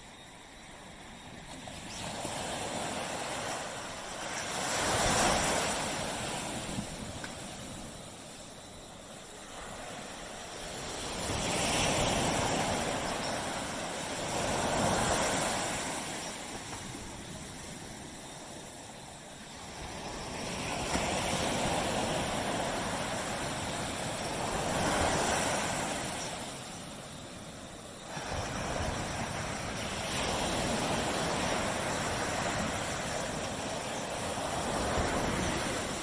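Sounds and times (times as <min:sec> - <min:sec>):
ocean waves breaking on beach: 0:00.0 - 0:36.0.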